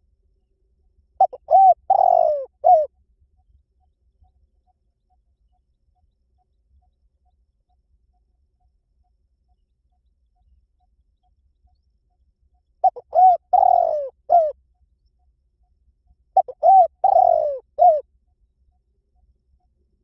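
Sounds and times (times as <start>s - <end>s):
dove cooing: 1.2s - 2.9s, 12.8s - 14.6s, 16.4s - 18.0s.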